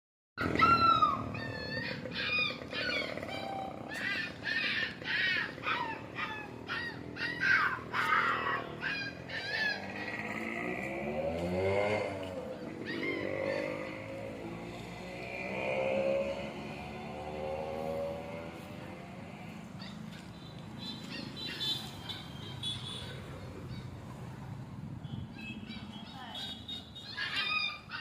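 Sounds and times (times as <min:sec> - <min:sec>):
bird harsh calls: 0:00.4 - 0:10.8, 0:20.8 - 0:24.0, 0:25.3 - 0:28.0
vehicle engine passing: 0:00.4 - 0:25.0.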